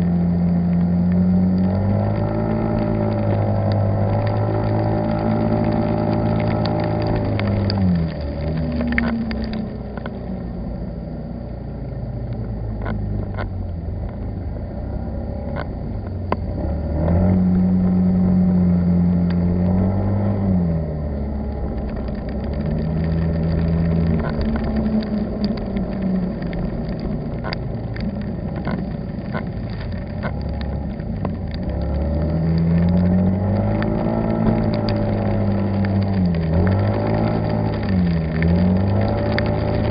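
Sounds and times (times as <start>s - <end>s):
car engine running: 0.0s - 39.9s
road noise: 0.0s - 39.9s.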